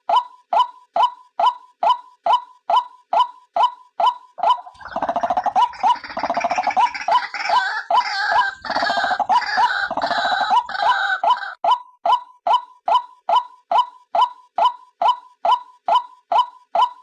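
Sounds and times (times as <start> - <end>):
harsh gargling bird chorus: 4.4 - 11.4.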